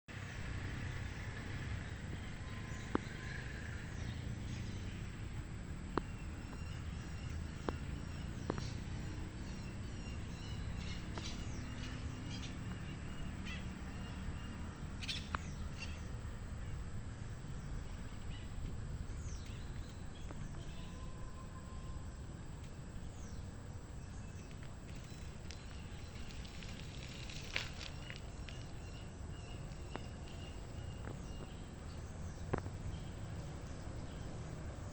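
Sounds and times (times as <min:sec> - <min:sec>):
steady low rumble: 0:14.6 - 0:34.9.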